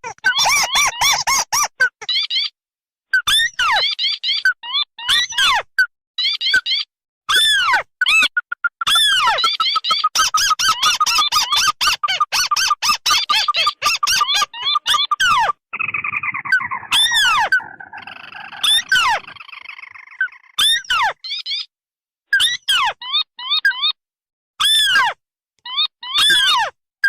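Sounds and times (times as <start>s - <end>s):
bird churring: 8.4s - 21.6s
sharp repeated bird notes: 12.2s - 21.7s.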